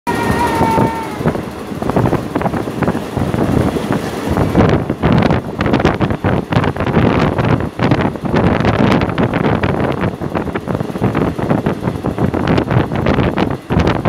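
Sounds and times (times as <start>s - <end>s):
steady high tone: 0.1s - 4.7s
train clattering and rattling: 0.1s - 14.0s
train roaring along track: 0.1s - 14.0s
wind buffeting microphone: 0.1s - 14.0s.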